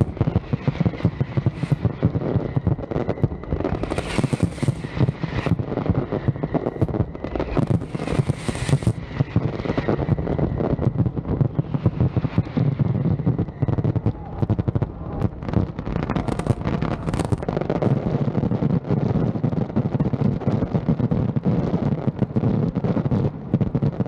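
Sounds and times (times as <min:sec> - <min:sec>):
fireworks hissing bursts: 0:00.0 - 0:13.1, 0:15.7 - 0:17.8
fireworks bangs and booms: 0:00.0 - 0:24.0.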